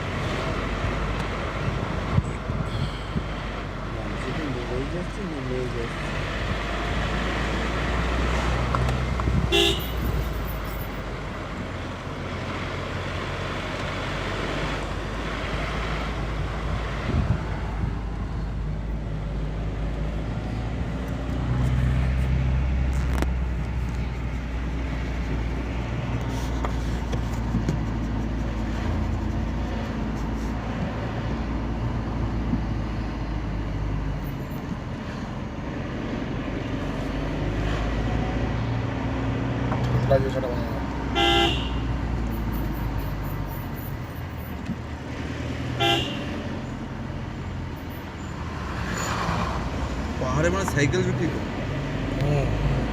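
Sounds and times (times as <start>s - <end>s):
car engine and road noise: 0.0s - 52.9s
car horn toot: 9.5s - 10.1s, 41.1s - 41.9s, 45.8s - 46.4s.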